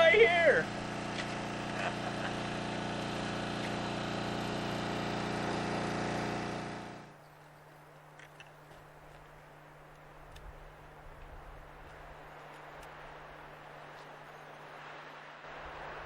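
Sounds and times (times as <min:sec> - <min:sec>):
engine-like hum: 0:00.0 - 0:16.0
small clicks: 0:08.1 - 0:09.4.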